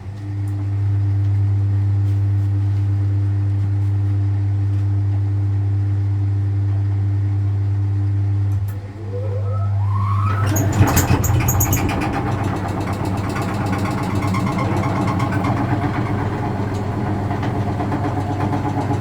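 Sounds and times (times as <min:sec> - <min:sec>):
washing machine motor humming: 0:07.8 - 0:19.0.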